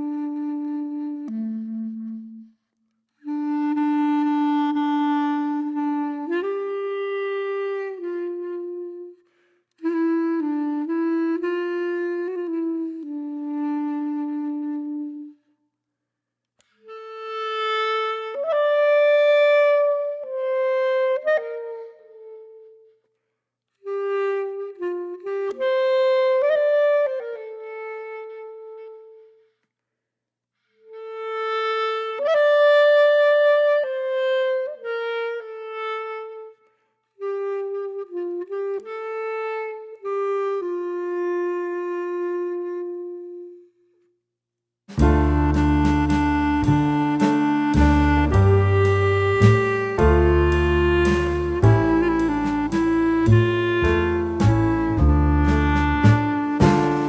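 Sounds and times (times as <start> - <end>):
solo wind instrument melody: 0.0 - 15.5, 16.6 - 23.0, 23.8 - 29.5, 30.8 - 44.0, 44.9 - 57.0.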